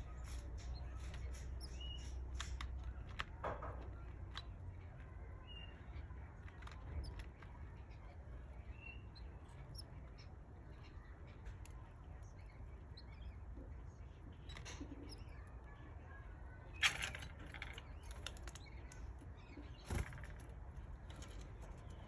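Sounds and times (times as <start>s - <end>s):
chicks chirping: 0.0s - 16.7s
small clicks and ticks: 0.0s - 22.0s.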